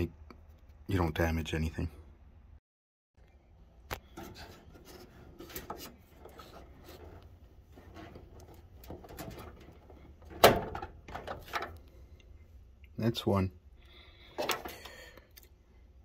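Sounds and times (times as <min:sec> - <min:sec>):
hands rubbing plastic connector: 0:03.9 - 0:10.4.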